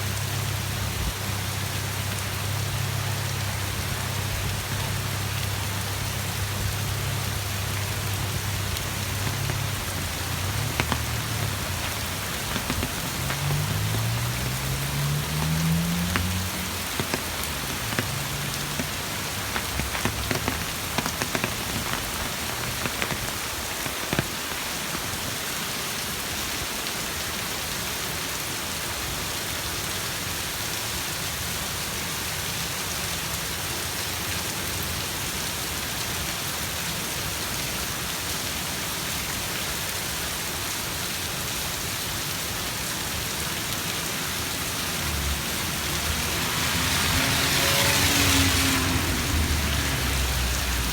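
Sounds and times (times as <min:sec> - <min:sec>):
steady rain falling: 0:00.0 - 0:50.9
sharp drop taps: 0:08.2 - 0:25.2.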